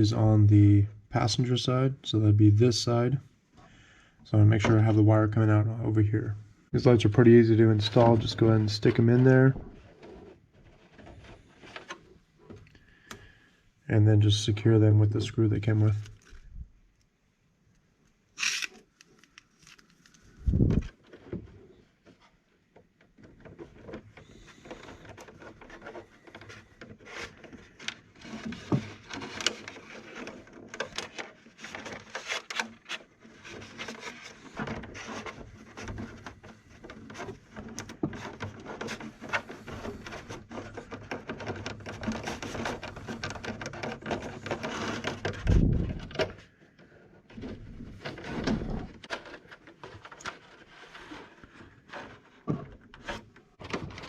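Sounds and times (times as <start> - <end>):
hands clicking and rubbing plastic: 15.7 - 21.4, 22.0 - 54.0.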